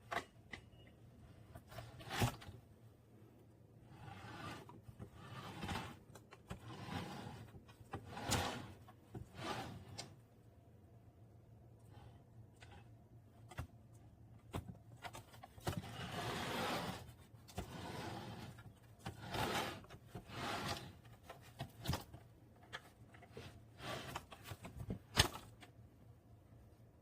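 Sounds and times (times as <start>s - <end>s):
plastic tray scraping swishes: 3.8s - 10.0s, 15.7s - 21.1s, 23.3s - 24.8s.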